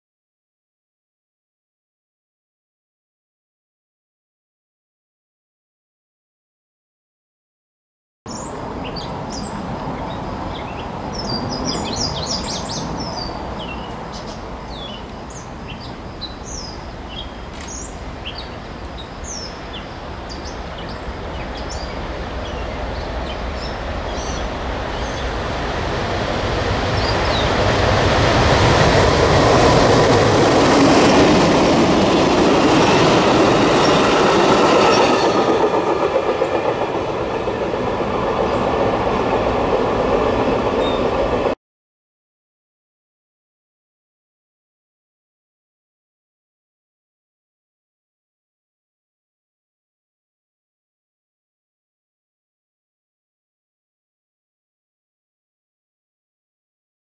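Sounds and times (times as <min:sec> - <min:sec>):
birds chirping: 0:08.3 - 0:26.0, 0:26.8 - 0:27.7, 0:32.1 - 0:41.5
train rumble and wheel noise: 0:08.3 - 0:41.6.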